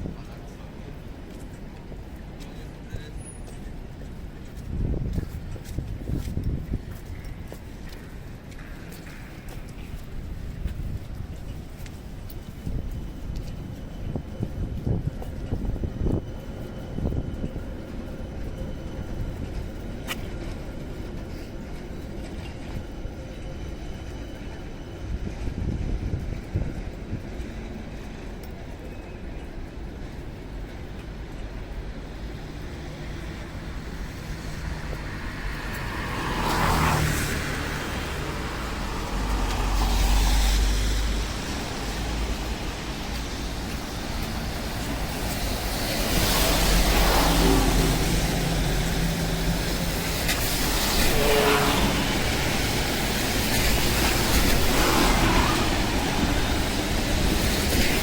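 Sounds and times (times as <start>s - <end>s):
low traffic rumble: 0.0s - 58.0s
cars passing: 32.0s - 58.0s.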